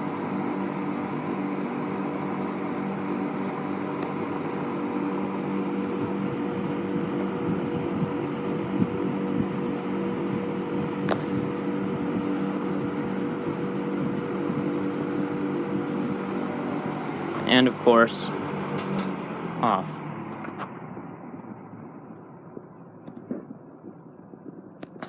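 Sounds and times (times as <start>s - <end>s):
box fan humming and whirring: 0.0s - 25.0s
sharp click: 18.8s - 19.2s.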